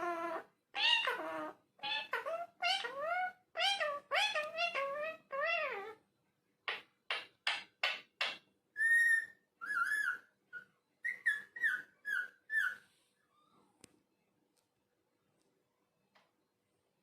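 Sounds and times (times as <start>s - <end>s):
parrot squawks: 0.0s - 6.0s, 8.8s - 12.8s.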